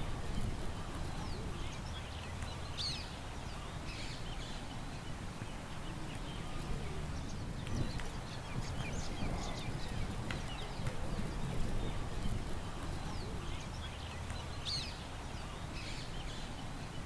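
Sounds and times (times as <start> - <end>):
low wind rumble: 0.0 - 2.2.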